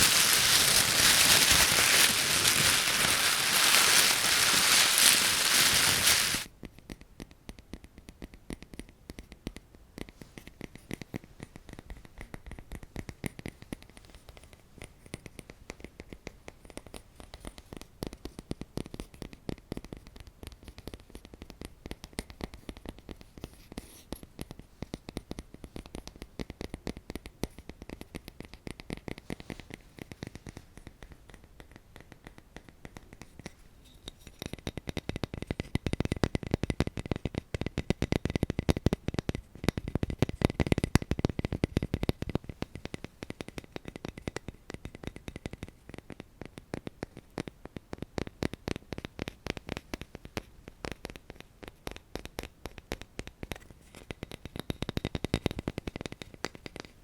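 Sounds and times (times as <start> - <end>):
scratching and tapping clicks: 34.2 - 57.0.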